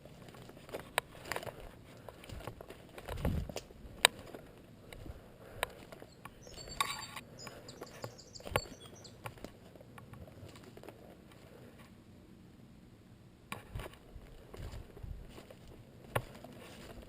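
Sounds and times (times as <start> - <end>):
bird chirping: 6.0 - 9.4.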